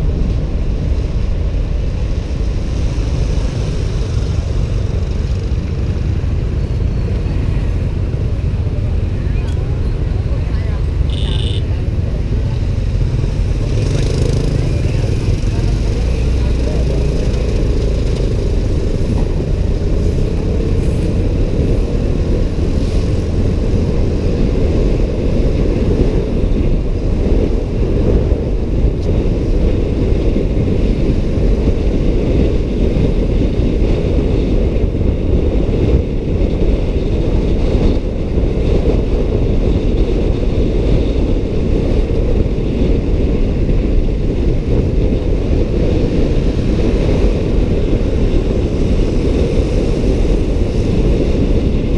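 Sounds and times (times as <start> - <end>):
motorbike and road noise: 0.0 - 51.9
wind buffeting microphone: 0.0 - 51.9.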